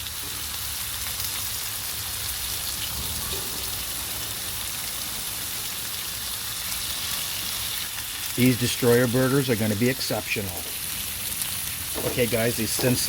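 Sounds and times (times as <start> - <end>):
steaks sizzling in a frying pan: 0.0 - 13.0.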